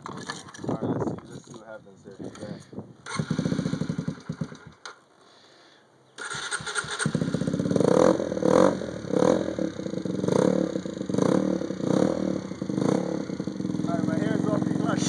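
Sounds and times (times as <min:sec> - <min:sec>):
motorcycle engine revving: 0:03.0 - 0:04.9, 0:06.2 - 0:15.0.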